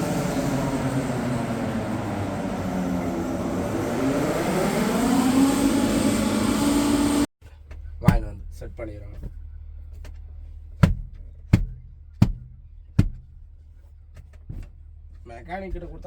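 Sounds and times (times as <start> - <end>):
lorry engine droning: 0.0 - 8.0.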